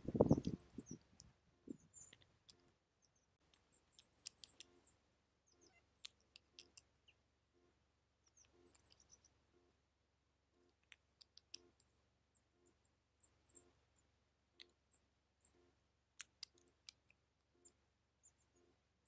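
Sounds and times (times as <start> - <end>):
small songbirds calling: 0.0 - 7.3, 8.1 - 9.5, 10.6 - 18.8
birds tapping on seeds: 3.5 - 4.9, 5.7 - 6.9, 8.3 - 9.3, 16.2 - 17.2.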